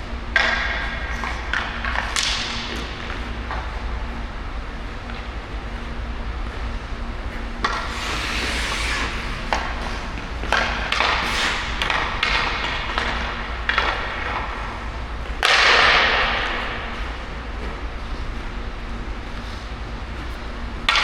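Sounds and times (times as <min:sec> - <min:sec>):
steady low hum: 0:00.0 - 0:21.0
skate blades scraping on ice: 0:07.6 - 0:18.4.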